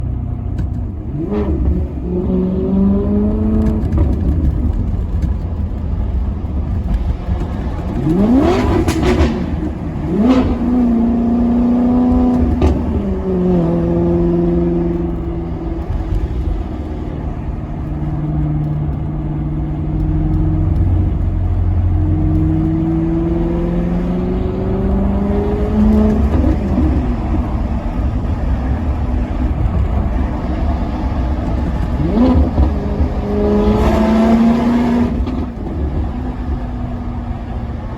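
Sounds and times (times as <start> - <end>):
car engine revving: 0.0 - 37.9.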